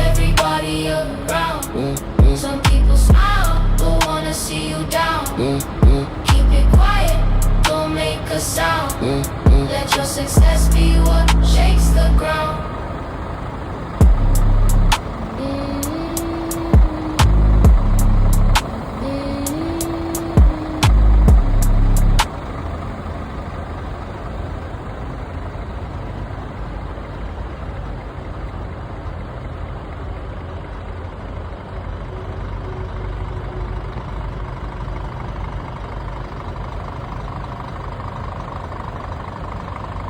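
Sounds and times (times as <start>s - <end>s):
loud music: 0.0s - 7.9s, 9.0s - 12.2s, 14.0s - 15.0s, 16.6s - 18.6s, 20.2s - 22.3s
truck engine idling: 0.0s - 40.0s.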